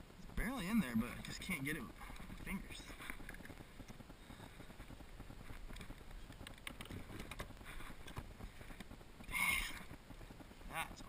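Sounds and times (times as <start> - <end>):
clicks and taps of hands and gear: 4.8 - 9.0.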